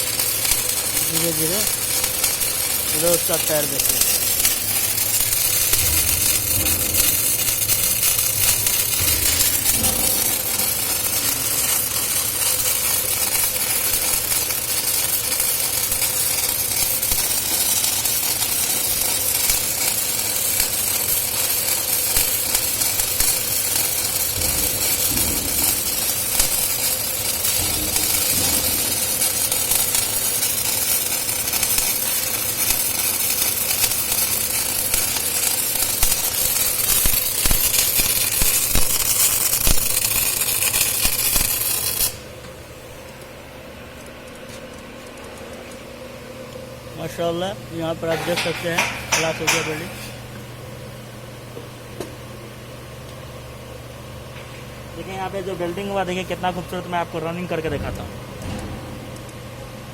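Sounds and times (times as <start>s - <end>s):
welding arc crackling sizzle: 0.0s - 59.9s.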